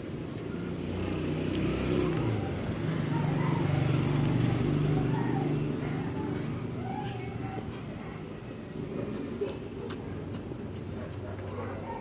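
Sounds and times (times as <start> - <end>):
motorcycle engine passing: 0.6 - 6.9.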